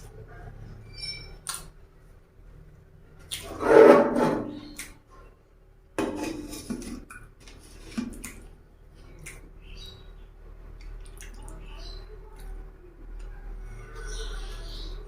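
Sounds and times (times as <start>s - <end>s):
plates and utensils clattering: 6.0s - 7.1s.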